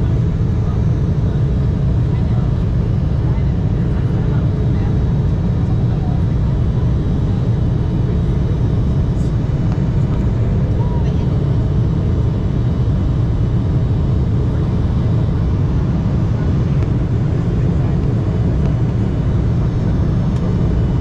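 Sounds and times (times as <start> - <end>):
airliner cabin roar: 0.0 - 21.0.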